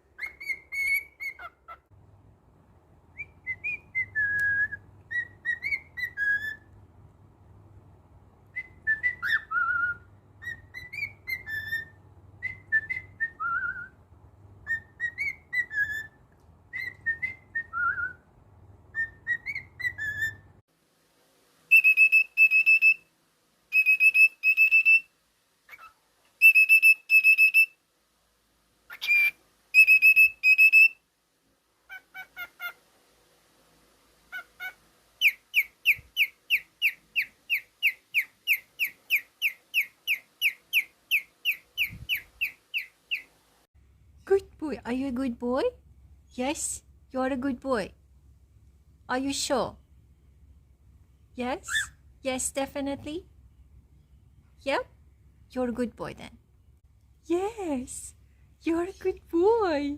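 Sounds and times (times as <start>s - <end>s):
cockatiel whistling: 0.2s - 1.8s, 3.1s - 6.7s, 8.5s - 14.0s, 14.6s - 18.2s, 18.9s - 20.5s, 21.7s - 23.1s, 23.7s - 25.1s, 25.7s - 27.8s, 28.9s - 31.0s, 34.3s - 43.3s, 51.7s - 52.0s.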